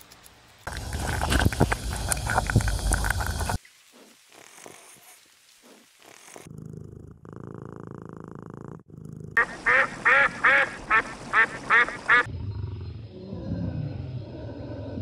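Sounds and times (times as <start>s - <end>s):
cat purring: 4.3s - 9.4s
duck quacking: 9.4s - 12.3s.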